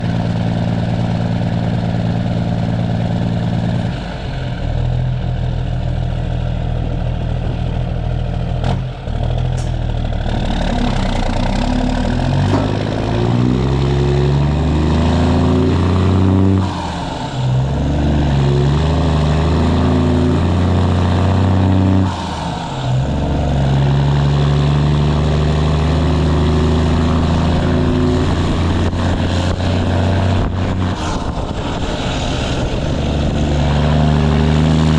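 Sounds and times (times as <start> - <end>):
diesel truck engine accelerating: 0.0 - 34.9.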